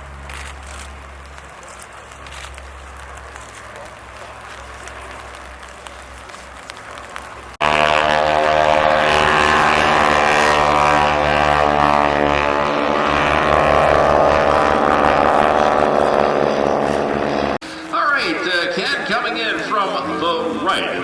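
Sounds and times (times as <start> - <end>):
propeller plane flying past: 0.0 - 21.0
background noise: 17.6 - 21.0.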